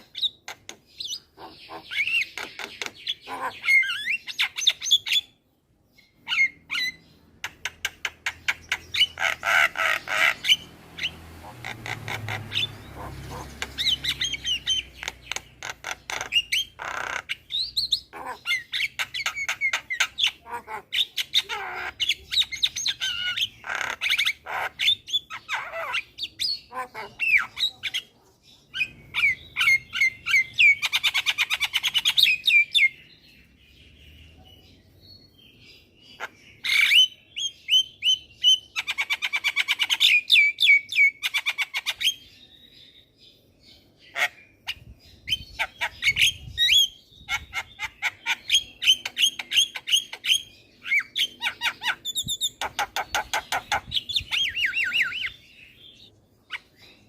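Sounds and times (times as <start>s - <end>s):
myna chattering and squawking: 0.0s - 5.2s, 6.3s - 28.1s, 44.1s - 55.4s.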